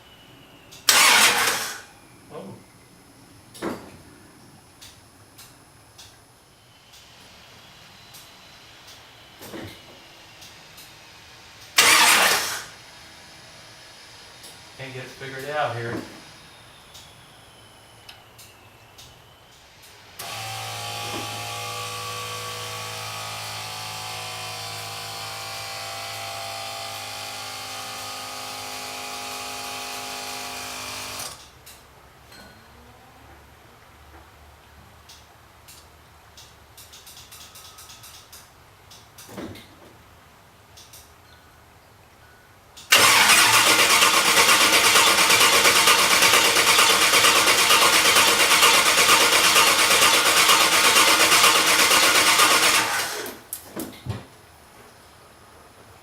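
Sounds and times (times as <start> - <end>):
engine cranking by starter motor: 0.8 - 1.9, 11.7 - 12.8, 20.2 - 25.6, 29.2 - 31.5, 42.9 - 53.5
electric motor whirring: 11.8 - 12.7.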